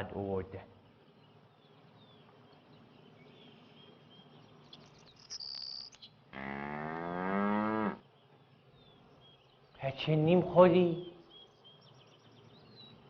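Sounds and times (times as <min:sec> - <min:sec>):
birds chirping faintly: 0:00.0 - 0:13.0
high shrill chirping call with clicks: 0:04.7 - 0:06.2
cow mooing: 0:06.3 - 0:08.0.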